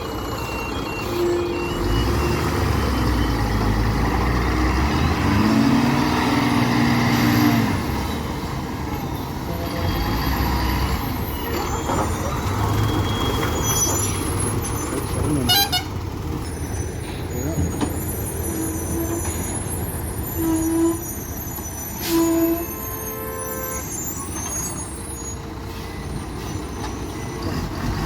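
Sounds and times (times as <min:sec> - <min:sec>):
loaded diesel trucks droning: 0:00.0 - 0:28.0.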